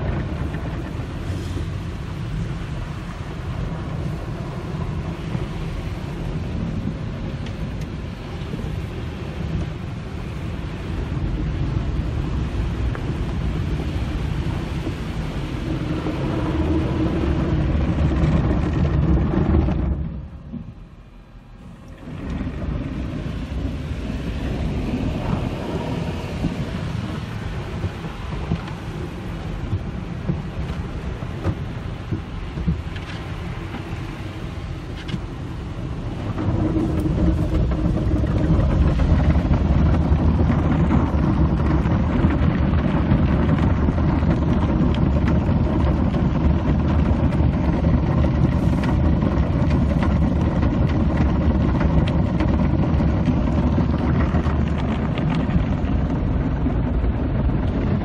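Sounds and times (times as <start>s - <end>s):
car wash water spray and brushes: 0.0s - 58.0s.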